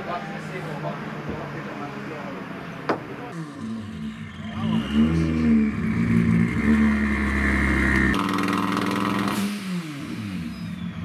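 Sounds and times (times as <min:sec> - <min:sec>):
car engine revving: 0:03.3 - 0:11.0.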